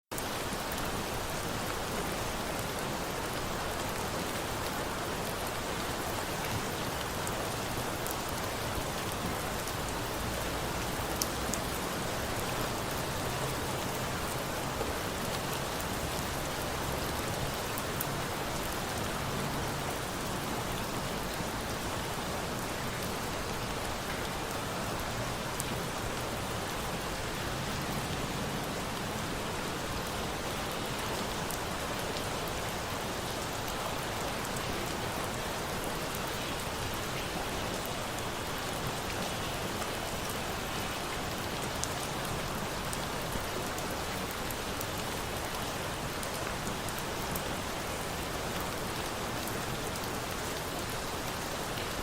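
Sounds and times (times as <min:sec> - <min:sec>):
steady rain: 0:00.1 - 0:52.0.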